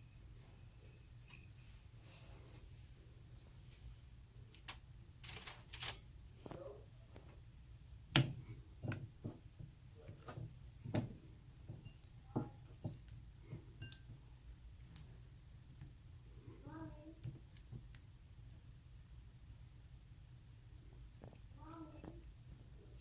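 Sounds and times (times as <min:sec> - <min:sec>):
dishes knocking and clinking: 0:08.8 - 0:14.2.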